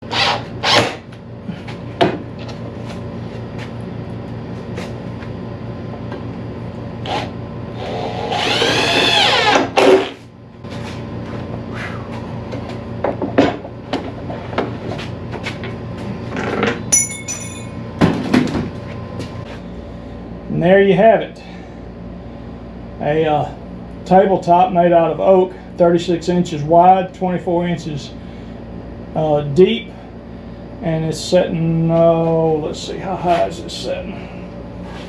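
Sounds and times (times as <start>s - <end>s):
power tool motor running: 0.0s - 1.0s, 7.0s - 10.2s.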